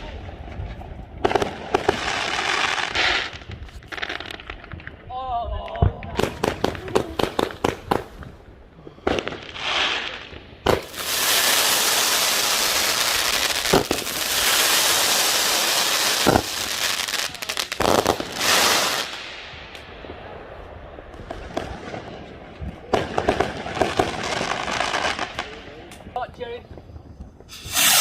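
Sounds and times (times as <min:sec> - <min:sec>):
firework bangs: 0:00.0 - 0:05.0, 0:05.8 - 0:25.8, 0:26.7 - 0:28.0
firework crackling: 0:00.0 - 0:05.0, 0:06.1 - 0:28.0
firework rushing whoosh: 0:27.4 - 0:28.0.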